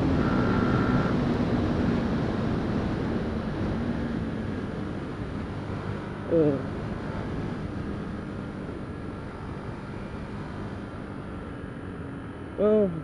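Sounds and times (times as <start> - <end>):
motorcycle engine revving: 0.0 - 13.0
wind and road noise: 0.0 - 13.0.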